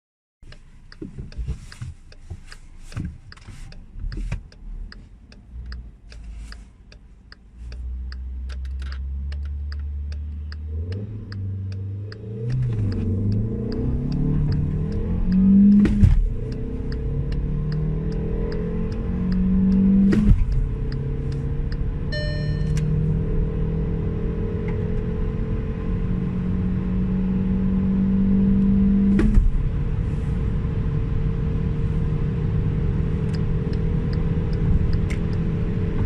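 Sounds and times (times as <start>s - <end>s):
steady ticking: 0.4s - 23.0s
car engine revving: 7.6s - 36.0s
knocks and clicks: 8.1s - 20.7s.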